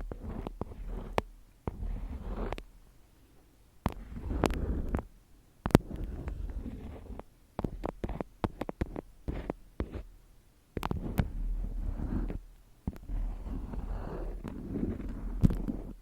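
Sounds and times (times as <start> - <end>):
scratchy rubbing and rustling: 0.0 - 2.7, 3.8 - 5.1, 5.7 - 10.1, 10.8 - 16.0
sharp taps and clicks: 5.6 - 6.0.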